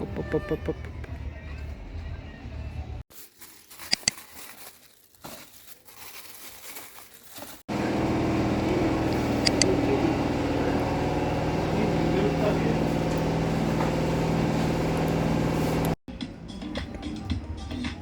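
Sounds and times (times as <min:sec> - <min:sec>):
motor hum with low drone: 0:07.7 - 0:16.0
sharp clicks: 0:09.1 - 0:09.8.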